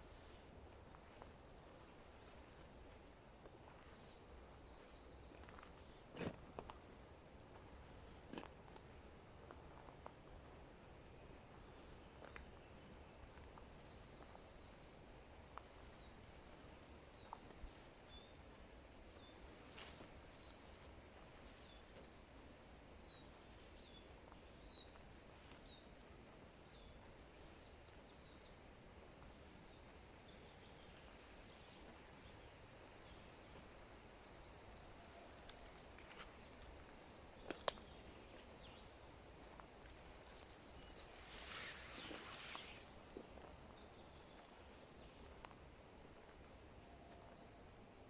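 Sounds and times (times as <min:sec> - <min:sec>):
brief rustle: 0:35.4 - 0:36.7.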